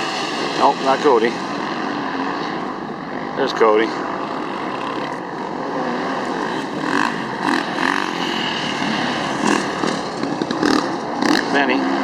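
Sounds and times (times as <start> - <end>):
dirt bike engines droning: 0.0 - 12.0.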